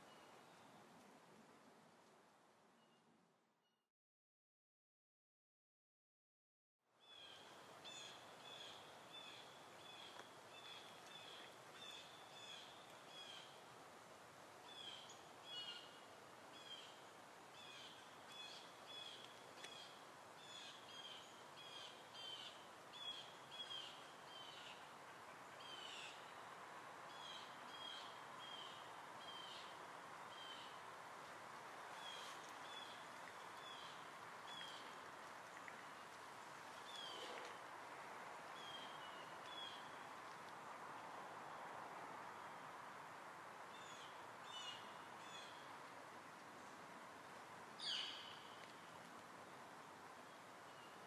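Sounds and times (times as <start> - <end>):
soft steady hiss: 0.0 - 3.7, 6.9 - 51.0.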